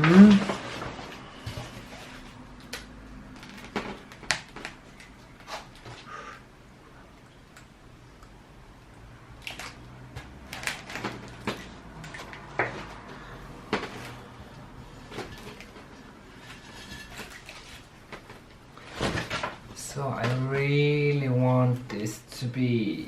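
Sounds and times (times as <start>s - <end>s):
potting mix scraping and rustling: 10.1s - 21.3s.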